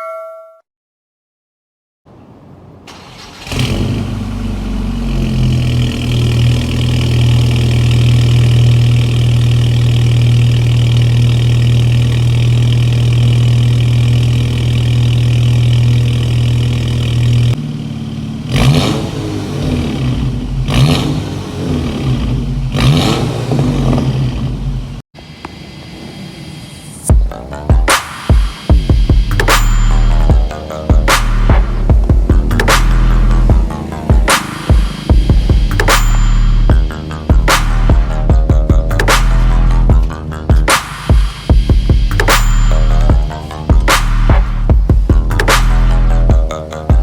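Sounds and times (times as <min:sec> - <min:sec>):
car engine starting and idling: 0:02.1 - 0:26.6, 0:28.7 - 0:47.0
engine revving: 0:02.9 - 0:25.0, 0:28.7 - 0:47.0.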